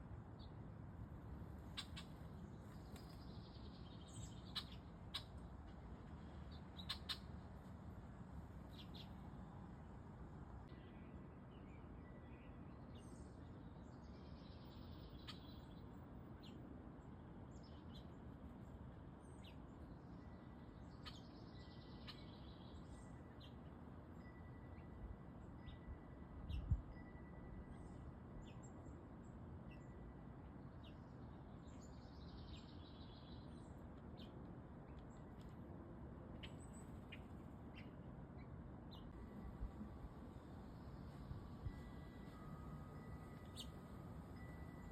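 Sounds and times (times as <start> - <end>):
birds chirping: 1.6 - 7.4, 8.6 - 9.4, 36.4 - 44.9.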